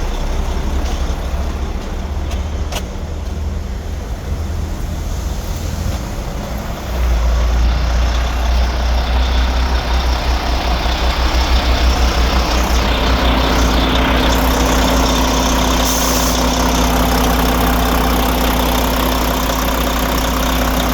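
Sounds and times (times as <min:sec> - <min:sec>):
diesel truck engine running: 0:00.0 - 0:20.9
higher hum: 0:12.6 - 0:20.9.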